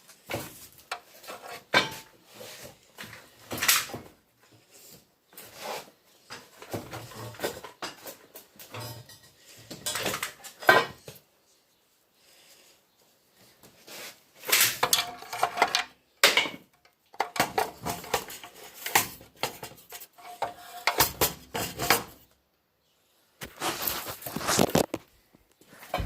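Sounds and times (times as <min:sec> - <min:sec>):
metal junk clattering: 0:06.8 - 0:11.0.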